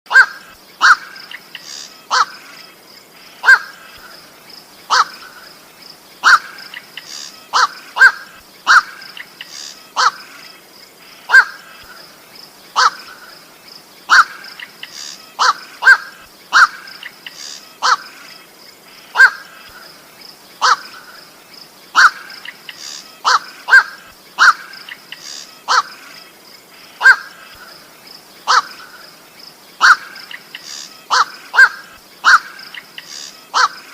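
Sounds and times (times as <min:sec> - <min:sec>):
heron harsh calls: 0:00.1 - 0:02.4, 0:03.4 - 0:03.9, 0:04.9 - 0:05.4, 0:06.2 - 0:06.6, 0:07.5 - 0:09.0, 0:09.9 - 0:10.2, 0:12.8 - 0:13.2, 0:14.1 - 0:18.1, 0:19.2 - 0:19.6, 0:20.6 - 0:21.1, 0:22.0 - 0:26.0, 0:27.0 - 0:27.5, 0:28.4 - 0:29.0, 0:29.8 - 0:33.9.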